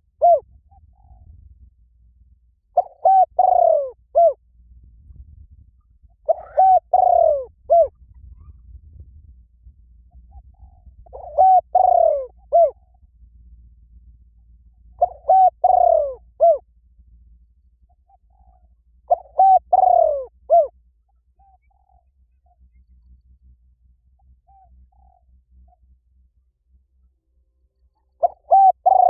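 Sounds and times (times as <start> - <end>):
bird cooing: 0.0 - 1.4, 2.7 - 4.4, 6.1 - 8.6, 10.1 - 13.0, 14.8 - 16.7, 17.9 - 22.8, 24.1 - 25.8, 27.8 - 29.0.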